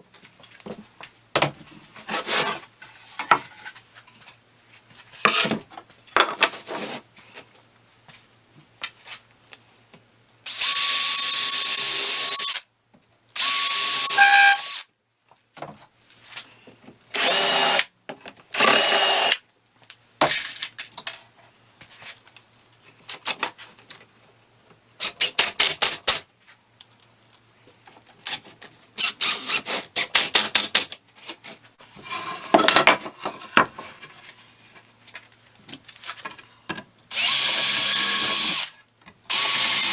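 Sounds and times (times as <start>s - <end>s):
power drill motor whine: 10.5s - 12.6s, 13.4s - 14.8s, 17.2s - 17.8s, 18.6s - 19.4s, 37.1s - 38.7s, 39.3s - 39.9s.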